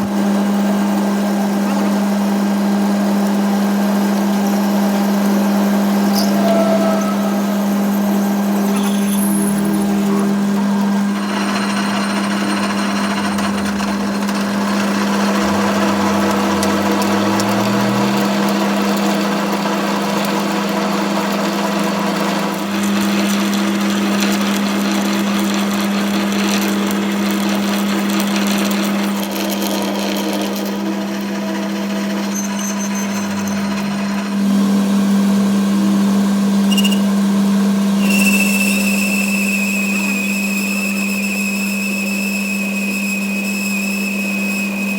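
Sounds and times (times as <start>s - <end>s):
workshop machinery humming: 0.0s - 44.9s
high steady tone: 5.9s - 18.5s.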